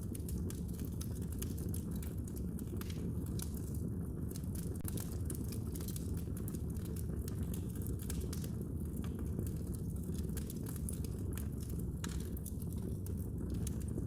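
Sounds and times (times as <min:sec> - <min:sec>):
fire crackling: 0:00.0 - 0:14.0
low rumble of fire: 0:00.0 - 0:14.0.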